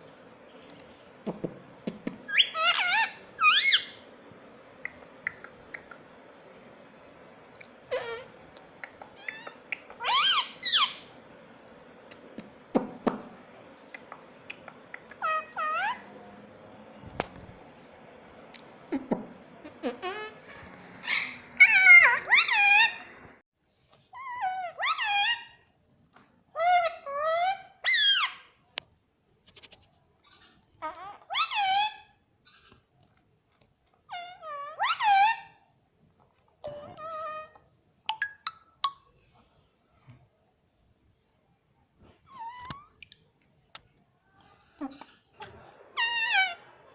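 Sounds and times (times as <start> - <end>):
parakeet calling: 2.2 - 4.2, 7.8 - 11.3, 13.9 - 16.2, 19.6 - 23.4, 24.2 - 25.6, 26.6 - 28.5, 30.2 - 32.8, 34.1 - 35.6, 36.7 - 37.6, 42.3 - 43.0, 45.0 - 46.9
parrot talking: 2.3 - 4.0, 7.9 - 11.1, 14.0 - 16.2, 18.9 - 23.3, 24.2 - 25.6, 26.6 - 28.5, 30.8 - 32.1, 34.1 - 35.6, 36.7 - 37.6, 44.8 - 46.9
sharp clicks: 14.0 - 15.2.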